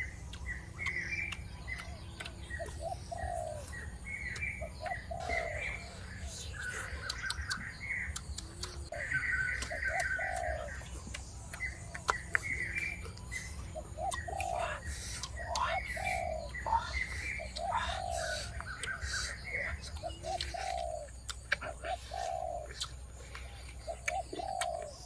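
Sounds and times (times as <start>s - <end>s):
bird chirping: 0.0s - 25.0s
low bird calls: 0.0s - 25.0s
steady low background noise: 0.0s - 25.0s
sharp clicks: 0.3s - 2.8s, 7.0s - 8.9s.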